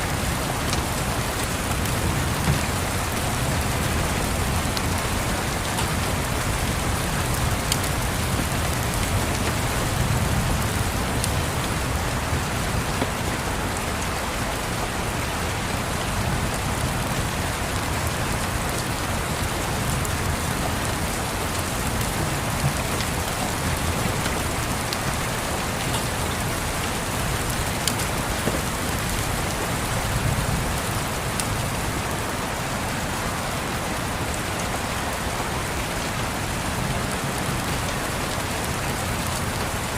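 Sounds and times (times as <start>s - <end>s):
rain pattering on a window: 0.0s - 39.9s.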